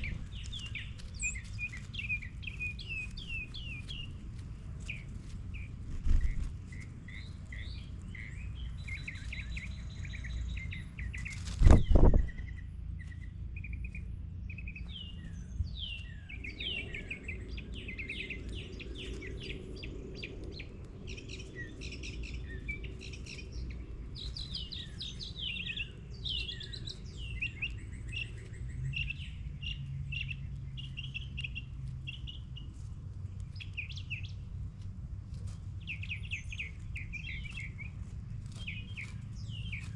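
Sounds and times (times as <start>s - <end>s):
small birds chirping: 0.0s - 39.9s
steady low rumble: 0.0s - 39.9s
dull low thump: 11.6s - 12.4s.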